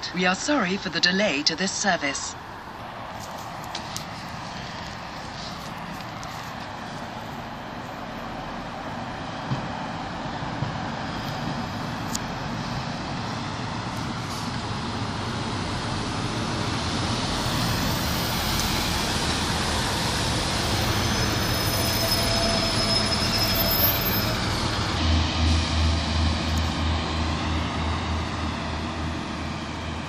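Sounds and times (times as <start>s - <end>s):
train rumble: 0.0s - 30.0s
diesel engine throbbing: 8.3s - 30.0s
train brakes squealing: 17.4s - 26.0s.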